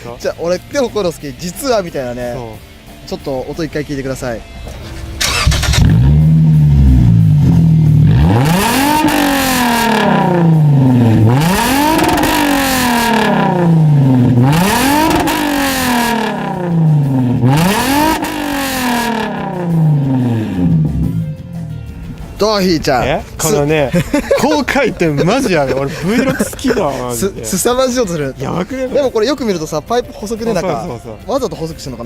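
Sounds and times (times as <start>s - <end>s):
car engine revving: 4.2s - 22.4s.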